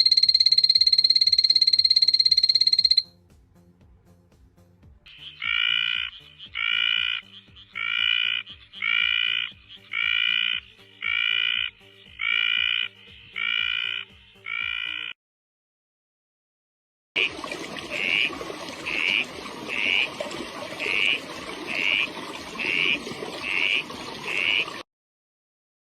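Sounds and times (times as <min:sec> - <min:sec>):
frog calling: 0:00.0 - 0:03.0, 0:05.1 - 0:15.2, 0:17.2 - 0:24.8.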